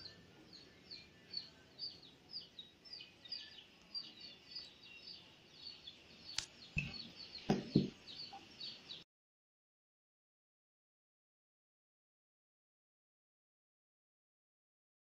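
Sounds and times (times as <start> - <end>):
small bird chirping: 0.0 - 9.0
dull handling knocks: 7.5 - 8.0.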